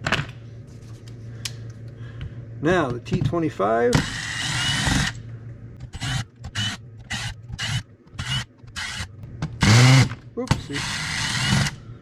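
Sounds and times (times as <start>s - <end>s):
cordless drill driving screws: 10.8s - 11.7s.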